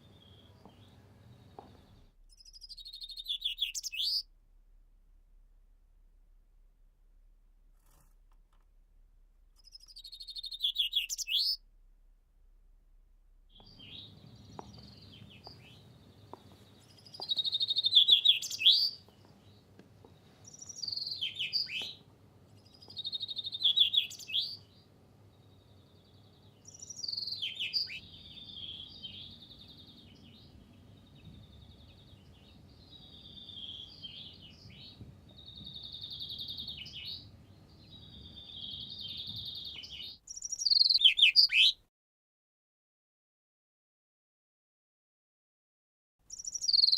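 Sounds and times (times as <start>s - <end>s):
finch singing: 0.0s - 4.3s, 9.6s - 11.6s, 13.5s - 22.0s, 22.6s - 24.8s, 25.4s - 41.8s, 46.3s - 46.9s.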